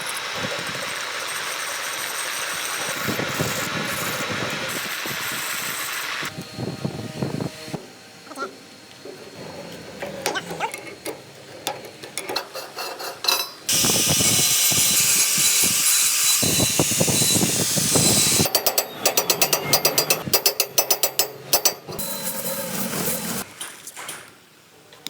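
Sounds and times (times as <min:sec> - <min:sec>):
loud steady hissing: 0:00.0 - 0:11.5, 0:13.6 - 0:18.5
metal clicks and knocks: 0:10.0 - 0:13.6, 0:18.5 - 0:22.0.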